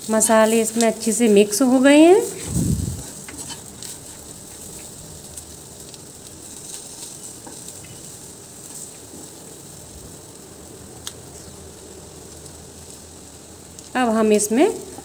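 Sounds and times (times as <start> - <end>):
onions sizzling in oil: 0.0 - 15.0
spatula scraping a pan: 2.3 - 4.9.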